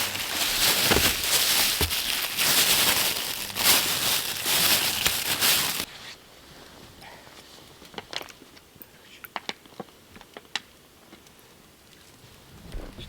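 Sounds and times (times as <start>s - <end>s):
crinkling and rustling handling: 0.0s - 6.0s.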